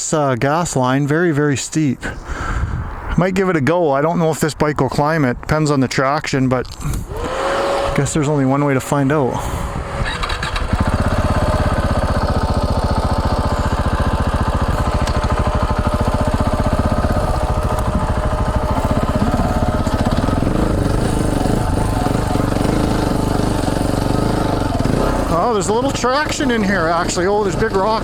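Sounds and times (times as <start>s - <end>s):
motorcycle engine pulling at low revs: 6.8s - 28.0s.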